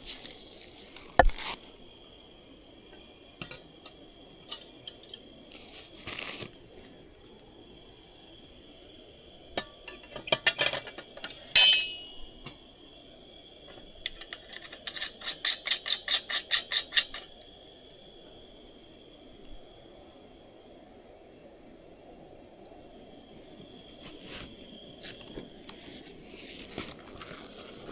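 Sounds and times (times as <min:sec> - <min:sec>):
dishes clinking: 0:03.4 - 0:05.3, 0:09.5 - 0:12.6, 0:13.7 - 0:17.3
faint steady high tone: 0:07.8 - 0:15.0.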